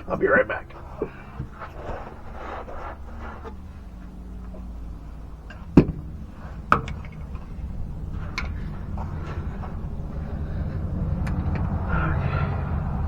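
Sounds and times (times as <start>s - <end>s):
steady low rumble: 0.0s - 13.0s
sharp knocks: 5.5s - 10.1s.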